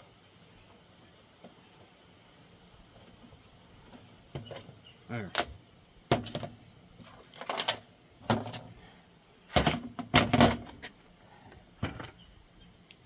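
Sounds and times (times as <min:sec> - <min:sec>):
hand tools clicking and clattering: 0:05.3 - 0:08.7.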